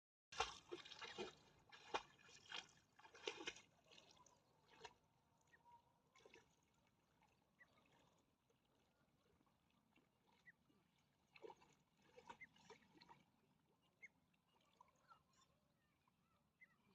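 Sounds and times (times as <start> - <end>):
water splashing: 0.4 - 5.0, 11.3 - 13.3.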